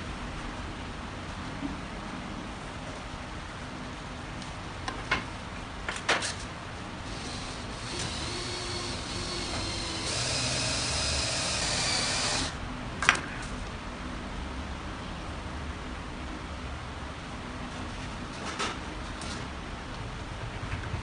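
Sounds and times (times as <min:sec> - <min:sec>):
power tool whining: 0:07.0 - 0:12.6.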